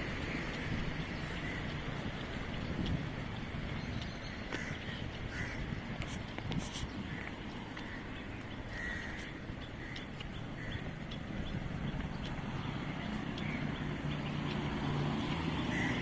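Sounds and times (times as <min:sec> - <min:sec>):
birds giving short calls: 0:03.8 - 0:14.2.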